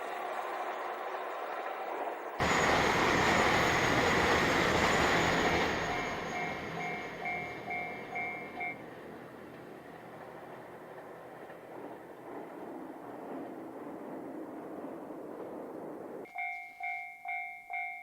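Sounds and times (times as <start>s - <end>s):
crossing alarm ringing: 0.0s - 8.9s, 16.3s - 18.0s
diesel train rumble: 0.0s - 16.2s
high thin whine: 2.4s - 8.8s.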